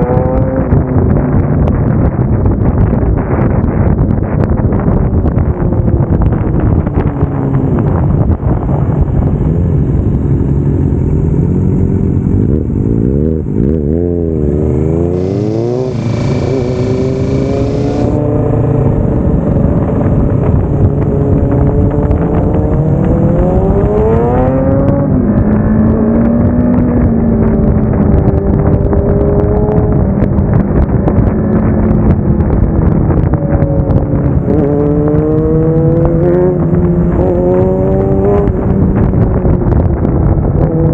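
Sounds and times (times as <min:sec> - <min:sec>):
motorcycle engine shifting gears: 0:00.0 - 0:40.9.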